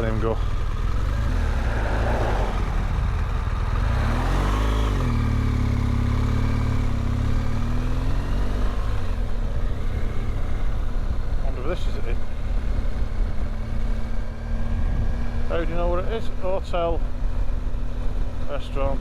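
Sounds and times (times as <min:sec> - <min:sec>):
motorcycle engine running: 0:00.0 - 0:19.0
wind noise: 0:14.5 - 0:15.7.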